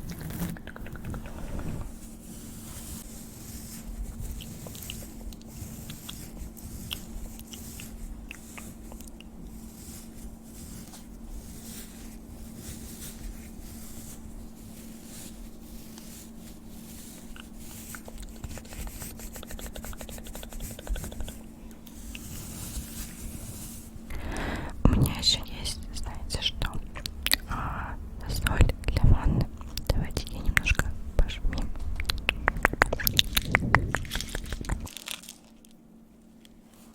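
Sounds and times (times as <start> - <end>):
rubbing: 0.0 - 24.1
faint steady hum: 0.0 - 36.9.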